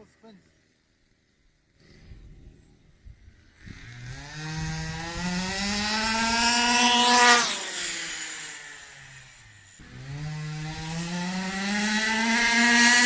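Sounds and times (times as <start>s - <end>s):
two-stroke engine revving: 3.1s - 13.0s.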